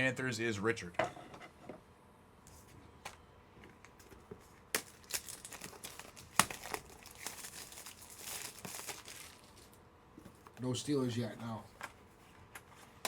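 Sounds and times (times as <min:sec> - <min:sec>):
packaging crinkling: 0:04.7 - 0:09.8.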